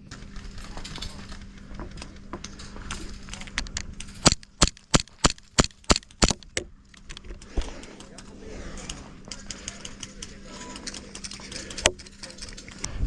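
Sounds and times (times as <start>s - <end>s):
airsoft gun shots: 4.2s - 6.5s.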